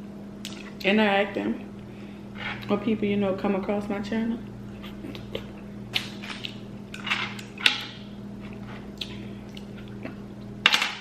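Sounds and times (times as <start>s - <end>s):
wet mouth clicks and chewing: 8.5s - 10.2s.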